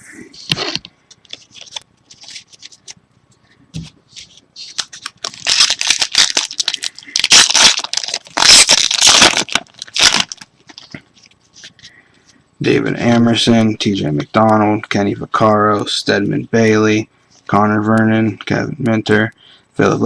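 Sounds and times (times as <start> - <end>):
wrapper tearing and crinkling: 4.6 - 10.9.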